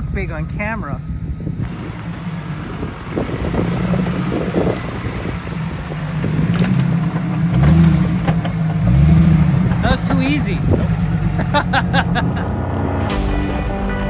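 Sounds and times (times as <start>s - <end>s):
off-road vehicle engine running: 0.0s - 14.0s
vehicle knocks and rattles: 1.6s - 12.4s.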